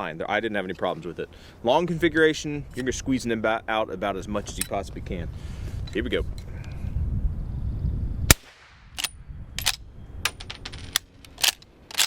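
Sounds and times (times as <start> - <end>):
suppressed rifle shot: 8.3 - 9.1
rifle lever clicking: 9.0 - 12.0.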